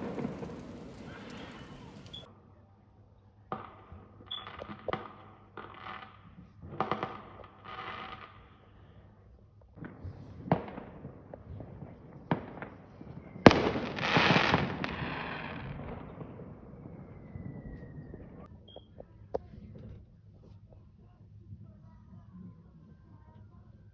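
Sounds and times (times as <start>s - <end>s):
falling firework whistle: 0.0s - 2.3s, 14.2s - 18.5s
fireworks bangs: 0.0s - 2.3s, 9.8s - 18.4s
fireworks crackling hiss: 0.0s - 2.3s.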